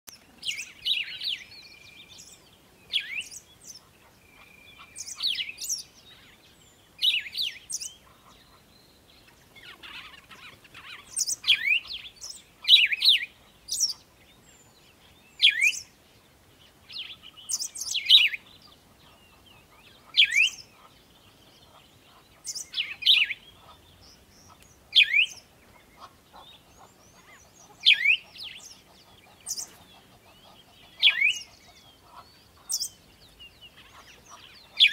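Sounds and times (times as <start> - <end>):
steady bird whistle: 27.1 - 32.9.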